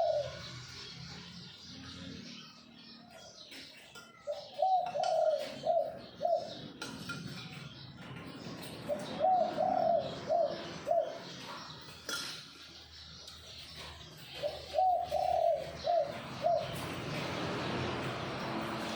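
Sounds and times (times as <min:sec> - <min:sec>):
dove cooing: 0:00.0 - 0:00.7, 0:04.2 - 0:12.0, 0:13.8 - 0:18.9.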